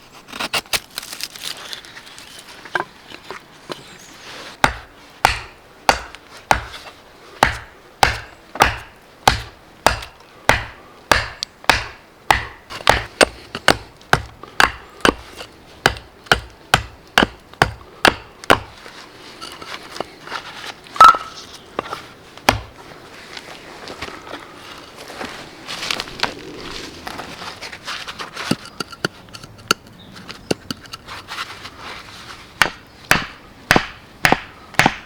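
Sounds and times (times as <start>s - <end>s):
hand tool chopping wood: 4.6s - 6.8s, 7.4s - 18.8s, 21.0s - 22.7s, 32.6s - 35.0s.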